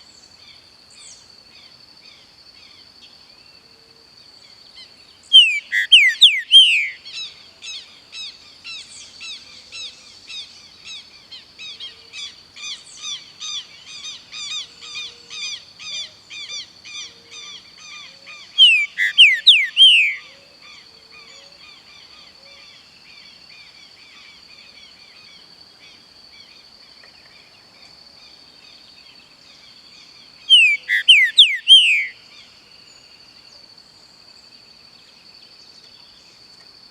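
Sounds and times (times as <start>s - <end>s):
soft bird chirping: 5.3s - 7.0s, 17.4s - 20.4s, 28.7s - 32.5s.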